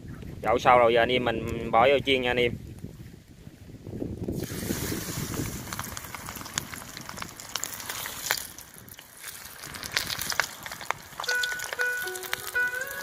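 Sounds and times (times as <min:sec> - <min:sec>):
crackling pops of frying oil: 0:04.3 - 0:13.0
chicken wings sizzling in oil: 0:04.4 - 0:13.0
music: 0:11.3 - 0:13.0.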